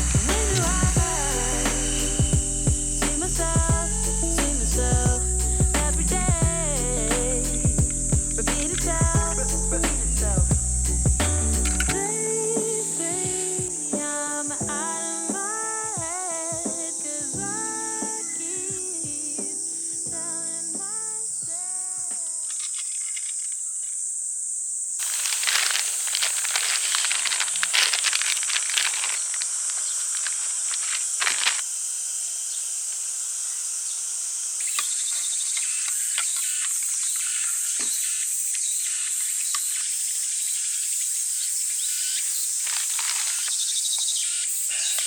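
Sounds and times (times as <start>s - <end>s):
insects buzzing: 0.0s - 45.0s
crackling rustling noise: 21.5s - 24.0s, 25.0s - 31.8s, 42.2s - 45.0s.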